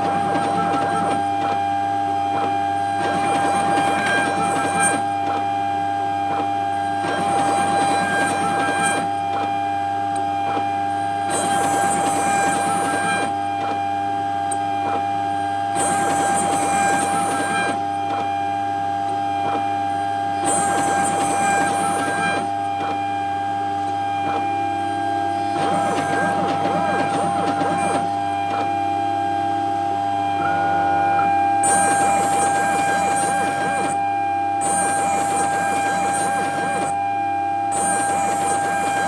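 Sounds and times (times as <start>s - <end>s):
cnc spindle whine: 0.0s - 39.0s
harsh metal cutting noise: 20.4s - 22.6s, 24.4s - 37.0s, 37.6s - 39.0s.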